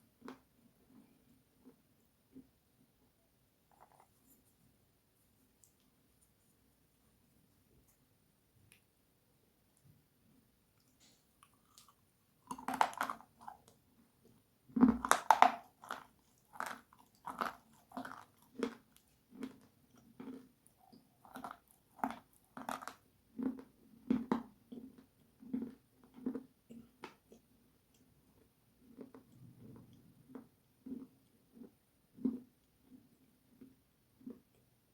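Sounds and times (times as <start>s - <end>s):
crunchy chewing: 10.8s - 13.8s, 14.8s - 34.7s.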